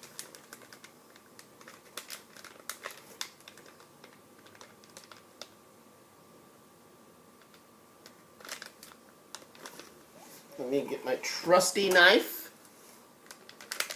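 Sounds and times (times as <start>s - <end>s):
plastic packaging clicks and taps: 0.0s - 5.6s, 13.2s - 13.9s.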